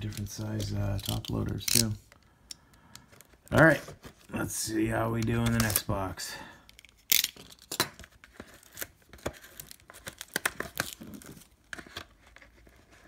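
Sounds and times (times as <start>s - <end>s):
packaging tearing and crinkling: 0.0s - 2.0s, 5.2s - 6.0s, 6.8s - 12.2s.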